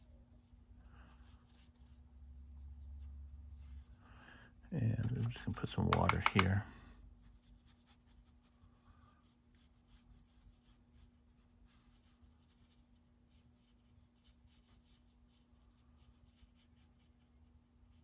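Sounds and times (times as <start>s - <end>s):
low steady hum: 0.0s - 18.0s
brush strokes on paper: 7.2s - 18.0s.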